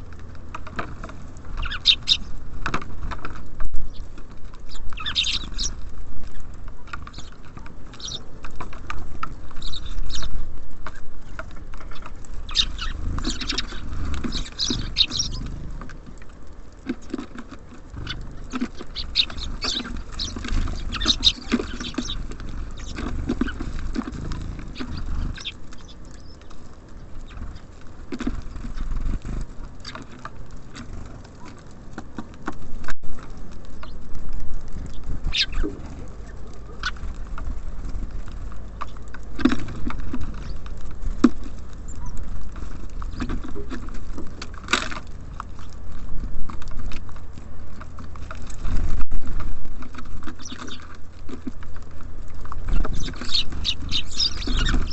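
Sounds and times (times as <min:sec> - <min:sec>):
birds pecking at feeder: 0:00.0 - 0:54.9
high bird chirps: 0:01.6 - 0:02.4, 0:04.7 - 0:05.8, 0:11.9 - 0:15.5, 0:18.0 - 0:23.6, 0:24.7 - 0:26.5, 0:34.9 - 0:35.7, 0:50.4 - 0:50.8, 0:52.9 - 0:54.9.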